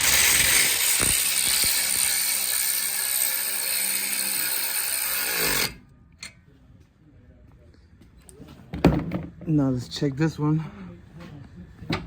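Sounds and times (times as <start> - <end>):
power tool motor running: 0.0 - 5.8.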